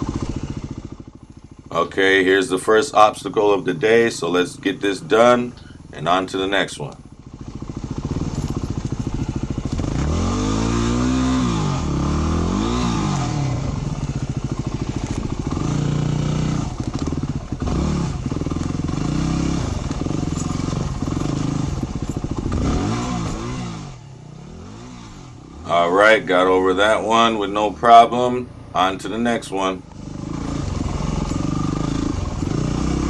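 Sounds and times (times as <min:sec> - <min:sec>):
dirt bike engine revving: 0:00.0 - 0:33.0
clatter: 0:07.0 - 0:24.0, 0:29.9 - 0:33.0.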